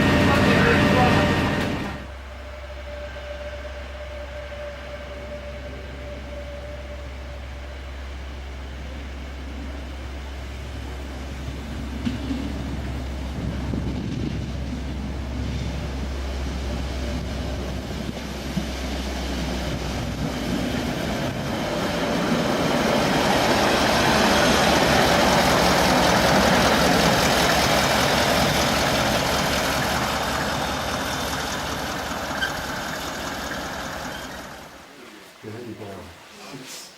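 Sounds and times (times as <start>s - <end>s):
narrow-gauge train passing: 0.0s - 36.3s.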